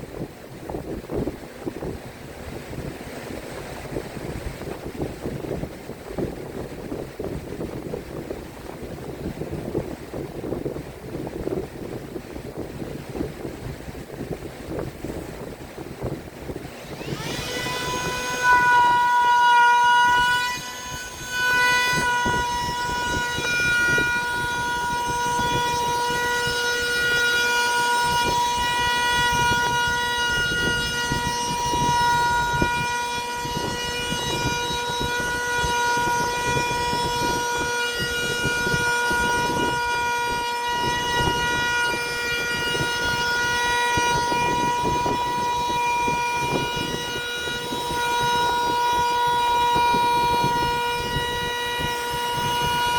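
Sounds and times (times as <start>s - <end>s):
power tool high-pitched whine: 16.4s - 52.9s.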